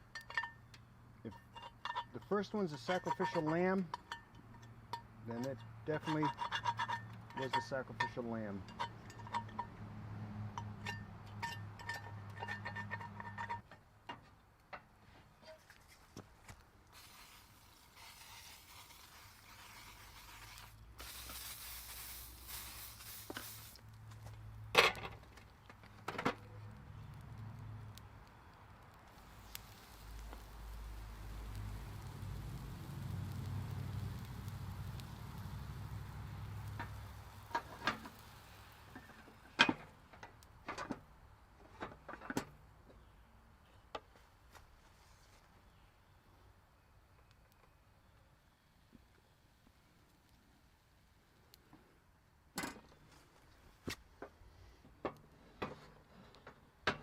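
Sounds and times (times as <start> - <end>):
metal cookware clicks and knocks: 0.1 - 2.2, 2.9 - 5.1, 6.1 - 9.8, 10.6 - 13.7
cooking spray hissing: 16.9 - 23.9, 29.0 - 39.0
stove burner rumble: 29.4 - 39.4.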